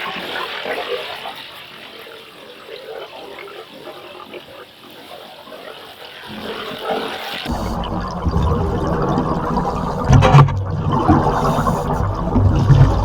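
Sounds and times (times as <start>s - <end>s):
diver exhaling bubbling air: 7.5s - 13.0s.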